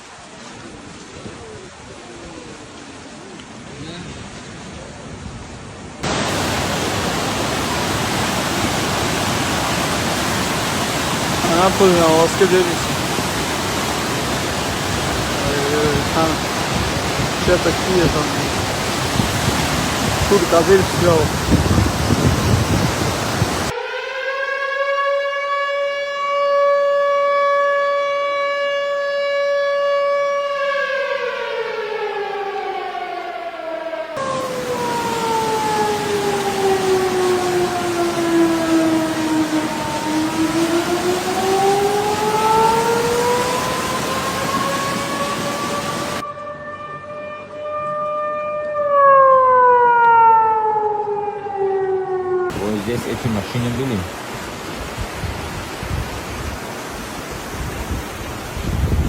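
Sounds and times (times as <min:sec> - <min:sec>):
floodwater rushing: 0:05.8 - 0:24.0, 0:31.2 - 0:46.3, 0:52.5 - 0:59.0
warning siren wailing: 0:06.0 - 0:53.7.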